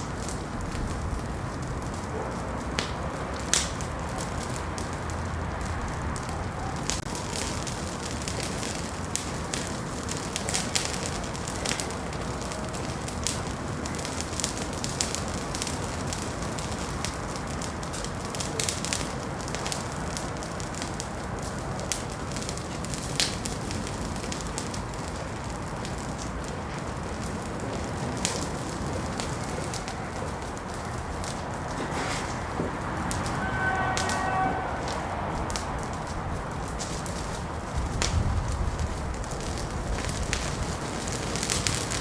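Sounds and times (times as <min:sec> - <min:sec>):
wood fire crackling: 0:00.0 - 0:42.0
steady low rush: 0:32.3 - 0:40.6.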